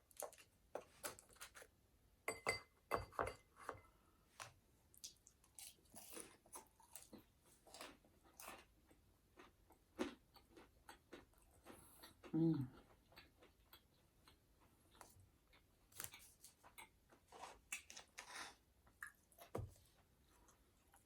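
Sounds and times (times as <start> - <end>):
chewing and mouth smacks: 19.0 - 19.6.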